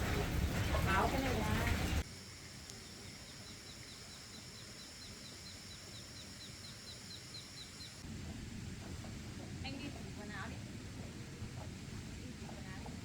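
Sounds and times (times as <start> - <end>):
bird chirping: 2.7 - 8.0.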